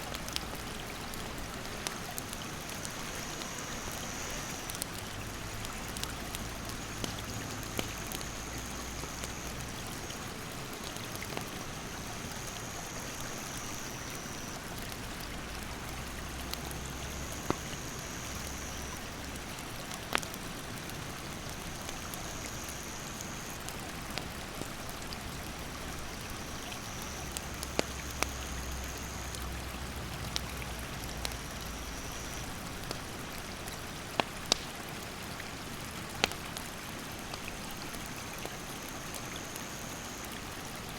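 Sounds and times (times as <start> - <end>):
campfire crackling and popping: 0.0 - 40.9
insect trilling: 2.6 - 10.2, 12.2 - 14.6, 26.3 - 29.5.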